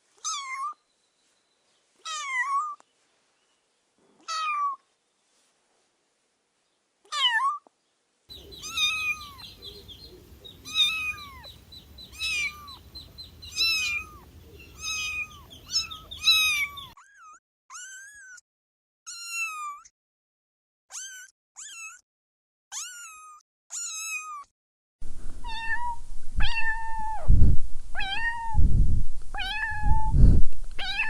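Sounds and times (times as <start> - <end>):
kittens meowing: 8.3 - 18.4, 25.4 - 27.2, 30.8 - 31.0
faint low rumble: 25.0 - 31.0.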